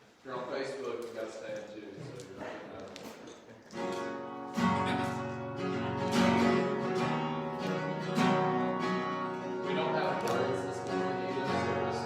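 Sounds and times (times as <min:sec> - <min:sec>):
acoustic guitar strumming chords: 0:03.7 - 0:12.0.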